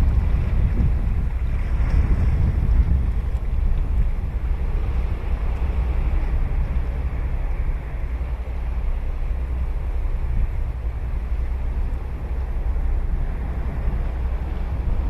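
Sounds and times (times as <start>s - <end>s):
ocean waves breaking on beach: 0.0s - 15.0s.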